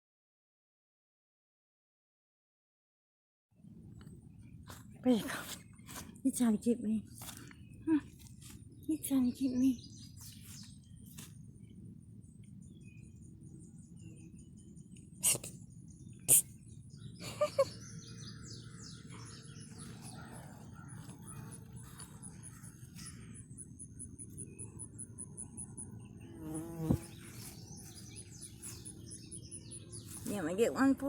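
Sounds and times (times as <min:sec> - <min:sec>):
birds chirping: 0:04.3 - 0:31.0
pulsing insect trill: 0:21.4 - 0:27.2.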